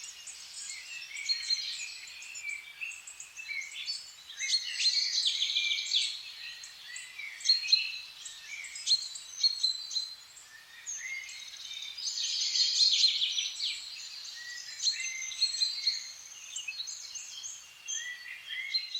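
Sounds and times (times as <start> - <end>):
songbirds singing and calling: 0.0 - 18.9.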